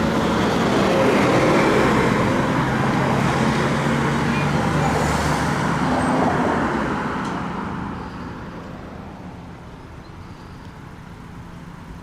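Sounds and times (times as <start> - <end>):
vehicle passing by: 0.0 - 9.2
traffic hum: 0.0 - 12.0.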